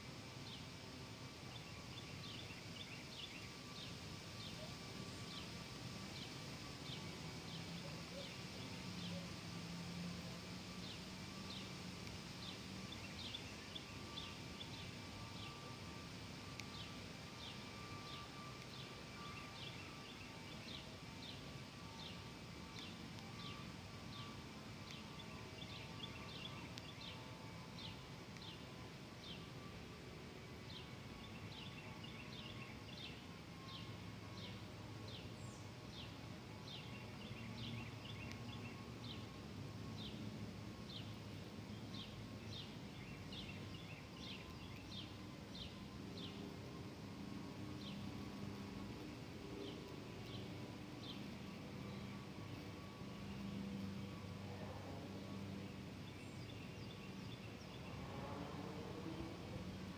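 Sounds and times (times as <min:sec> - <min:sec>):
birds chirping: 0:30.6 - 0:39.3, 0:40.8 - 0:54.2.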